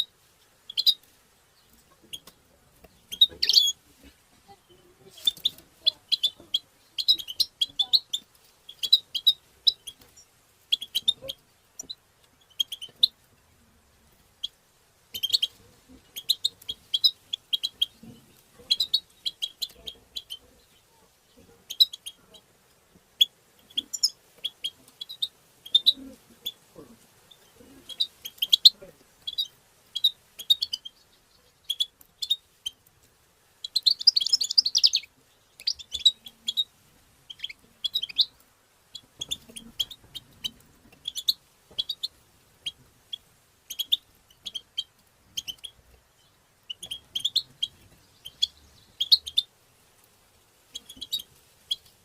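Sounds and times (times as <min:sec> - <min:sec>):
goldfinch twittering song: 0:00.7 - 0:01.0, 0:03.0 - 0:03.8, 0:33.6 - 0:36.7, 0:37.3 - 0:49.5, 0:50.7 - 0:51.9.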